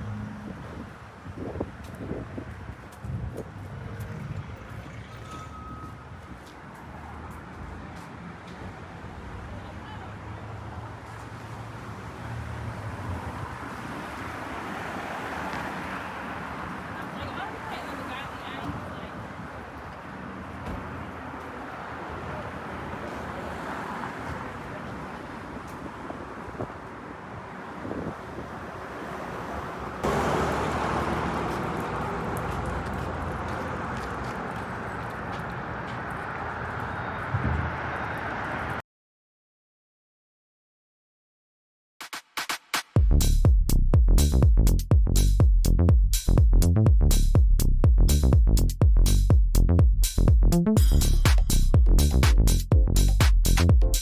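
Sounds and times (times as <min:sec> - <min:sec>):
road traffic with engine hum: 0:00.0 - 0:38.8, 0:43.0 - 0:54.0.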